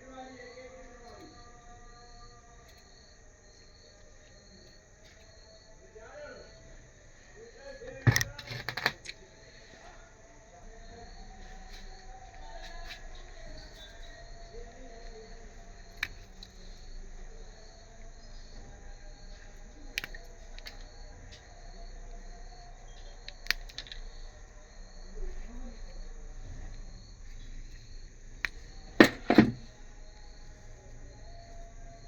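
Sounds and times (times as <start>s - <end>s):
cricket chirping: 0.0s - 32.0s
loud knocks: 29.0s - 29.6s.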